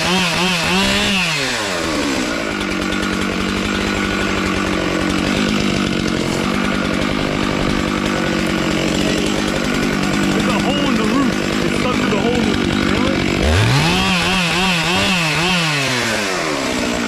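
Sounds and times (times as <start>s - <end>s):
chainsaw engine running: 0.0s - 17.0s.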